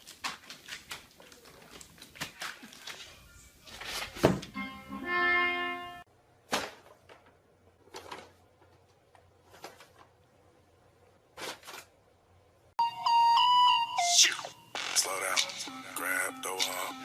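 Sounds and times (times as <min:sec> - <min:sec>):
held musical tone: 0:04.5 - 0:06.1, 0:12.8 - 0:17.0.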